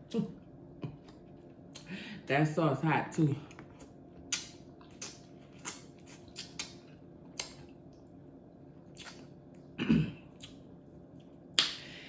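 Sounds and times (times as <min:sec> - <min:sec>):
wet chewing: 0:03.5 - 0:08.2, 0:08.8 - 0:09.7
lip smacks: 0:03.8 - 0:08.0, 0:08.8 - 0:09.4, 0:11.5 - 0:11.8.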